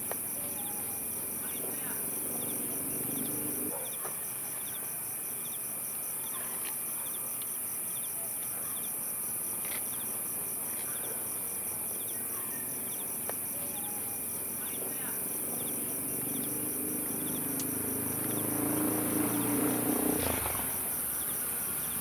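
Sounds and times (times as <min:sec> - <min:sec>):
insects chirping: 0:00.0 - 0:22.0
high hiss: 0:17.5 - 0:22.0.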